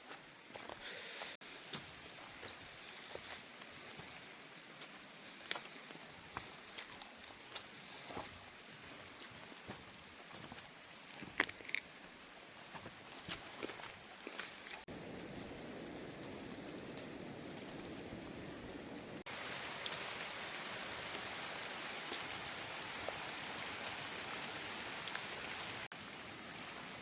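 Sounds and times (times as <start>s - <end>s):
insect chirping: 0.0s - 19.2s.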